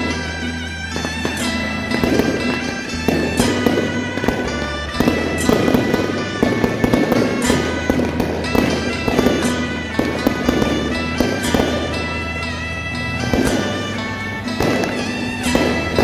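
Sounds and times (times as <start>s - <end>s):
electronic firecracker bangs: 0.9s - 12.0s, 13.2s - 16.0s.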